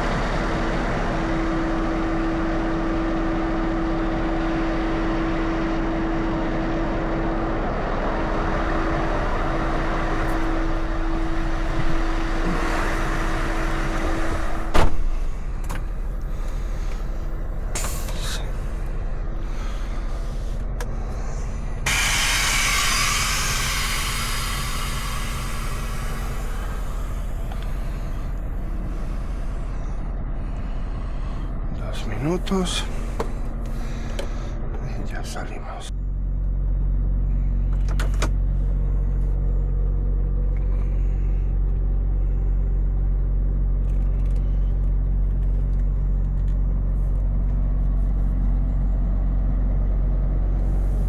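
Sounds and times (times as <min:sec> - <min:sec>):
truck engine idling: 0:00.0 - 0:51.0
hiss: 0:12.4 - 0:14.7, 0:16.5 - 0:18.8, 0:21.2 - 0:28.3.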